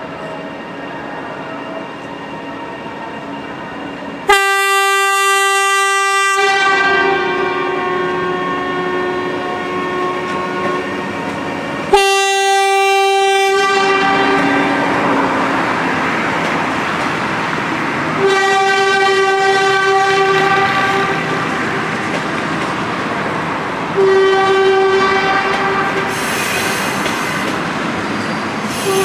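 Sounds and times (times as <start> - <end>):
train running noise: 0.0 - 29.0
locomotive air horn blasts: 4.3 - 11.0, 11.9 - 14.9, 18.2 - 22.1, 24.0 - 27.0, 28.7 - 29.0.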